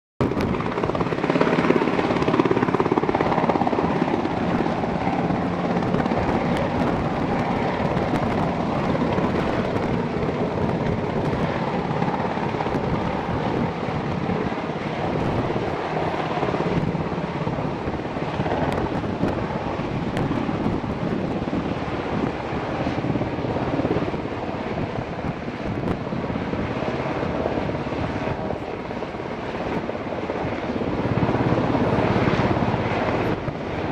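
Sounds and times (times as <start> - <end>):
helicopter rotor chopping: 0.2 - 33.9
turbine engine whine: 0.2 - 33.9.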